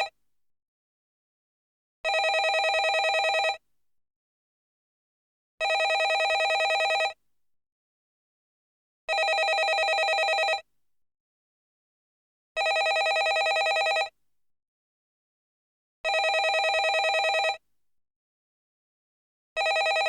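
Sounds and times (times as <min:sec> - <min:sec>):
telephone ringing: 0:02.1 - 0:03.6, 0:05.6 - 0:07.2, 0:09.1 - 0:10.6, 0:12.6 - 0:14.1, 0:16.1 - 0:17.6, 0:19.6 - 0:20.0.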